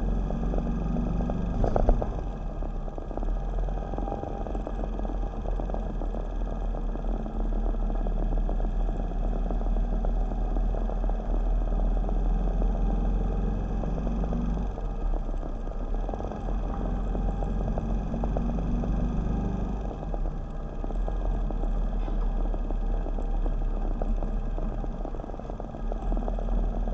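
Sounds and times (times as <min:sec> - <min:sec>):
road and wind rumble: 0:00.0 - 0:06.4
motorcycle engine running: 0:00.0 - 0:26.9.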